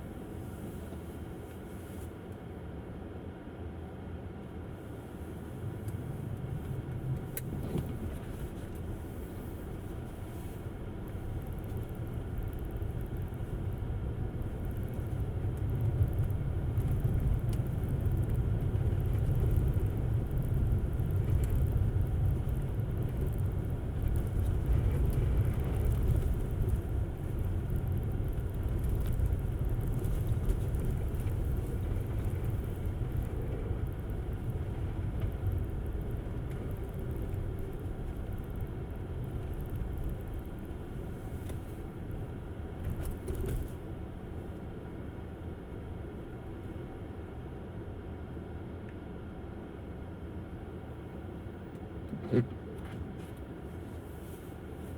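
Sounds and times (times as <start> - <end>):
tyre and road noise: 5.7 - 44.6.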